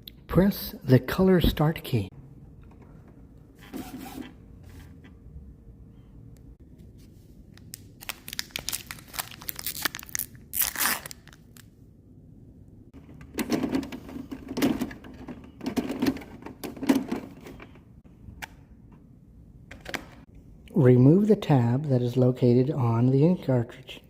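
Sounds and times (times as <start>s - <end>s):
packaging crinkling and tearing: 7.6s - 11.7s.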